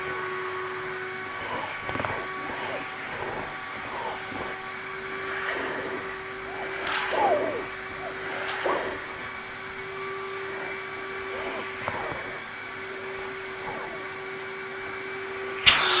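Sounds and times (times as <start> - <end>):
vacuum cleaner motor whining: 0.0 - 16.0
sharp click: 6.8 - 7.5, 15.6 - 16.0.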